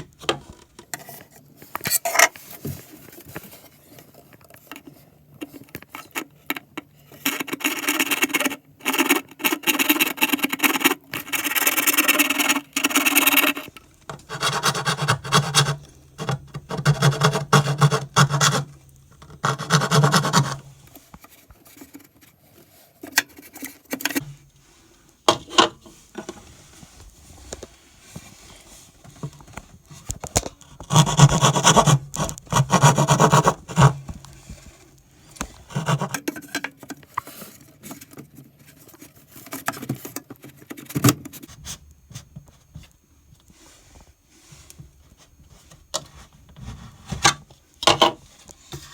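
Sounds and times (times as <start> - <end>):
tool scraping and rasping: 11.3 - 18.7, 19.3 - 20.6, 30.8 - 34.0.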